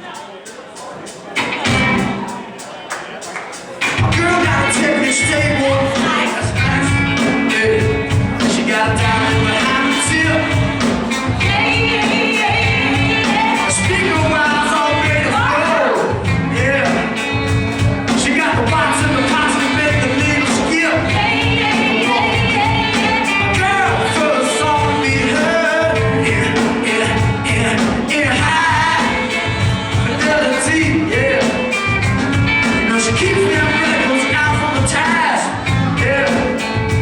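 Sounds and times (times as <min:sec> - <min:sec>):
live band playing: 0:00.0 - 0:37.0
lead singer singing: 0:03.8 - 0:37.0.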